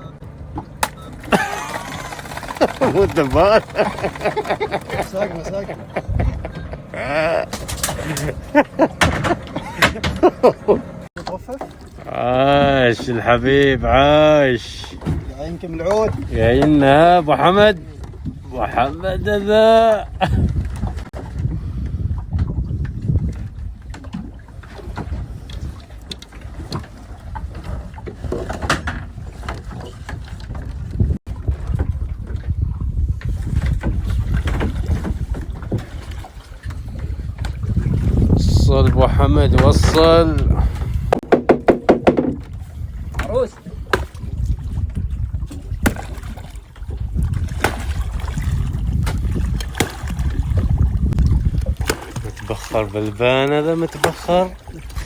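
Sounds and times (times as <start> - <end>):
boat engine rumble: 0.0 - 55.0
gear knocking on boat: 0.1 - 12.0, 14.9 - 32.6, 33.2 - 55.0
wind on microphone: 1.4 - 11.1, 12.5 - 53.2, 54.2 - 55.0
sharp knocks on boat: 7.5 - 11.8, 15.0 - 16.8, 26.1 - 32.4, 38.8 - 40.5, 41.1 - 44.5, 45.4 - 46.6, 47.4 - 52.4, 53.9 - 54.5.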